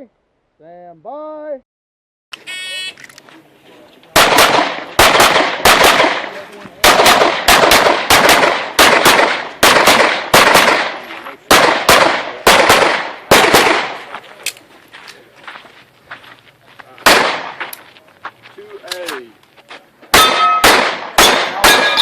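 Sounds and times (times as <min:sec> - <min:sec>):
pistol shots: 0:04.2 - 0:14.1, 0:17.0 - 0:17.6, 0:20.1 - 0:22.0.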